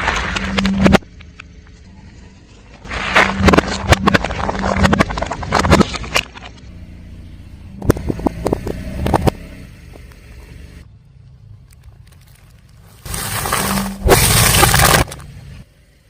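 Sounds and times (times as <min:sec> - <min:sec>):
low hum of car: 0:00.0 - 0:16.0
tyre crushing brittle objects: 0:02.9 - 0:06.6, 0:11.7 - 0:15.5.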